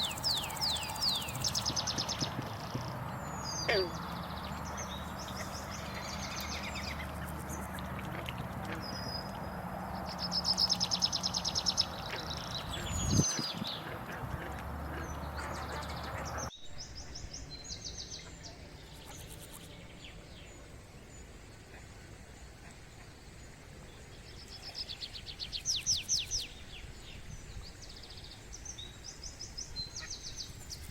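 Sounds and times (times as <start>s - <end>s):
birds trilling: 0.0s - 16.5s.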